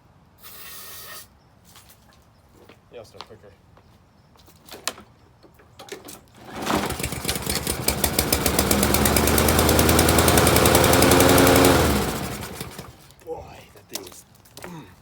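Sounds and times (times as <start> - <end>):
lawn mower engine running: 6.4 - 13.1.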